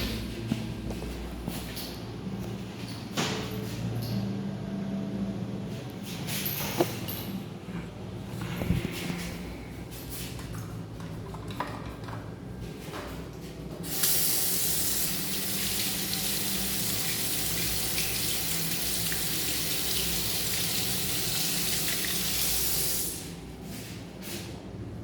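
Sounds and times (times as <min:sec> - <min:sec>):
sink tap running water: 0:13.9 - 0:23.3.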